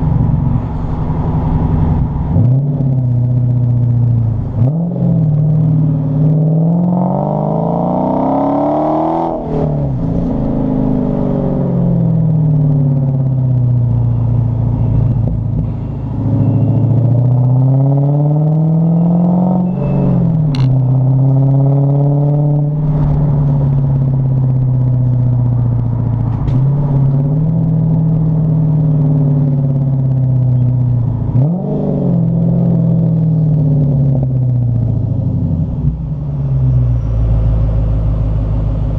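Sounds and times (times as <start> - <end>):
car exhaust under throttle: 0.0 - 38.9.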